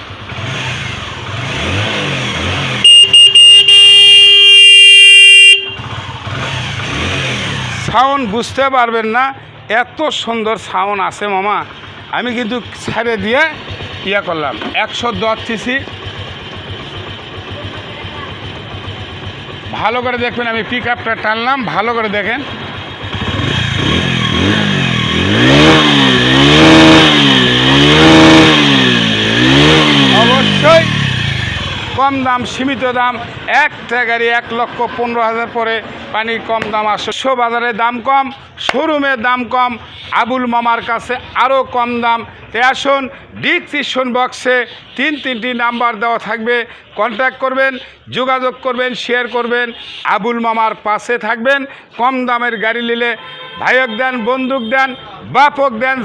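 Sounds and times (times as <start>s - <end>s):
motorcycle horn beeping: 2.7s - 6.2s, 53.1s - 55.3s
motorcycle engine idling: 10.6s - 35.0s.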